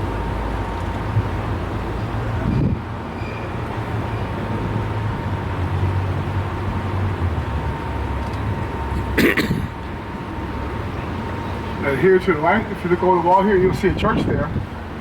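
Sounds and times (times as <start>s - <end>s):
short sharp cough-like sound: 9.1s - 9.7s.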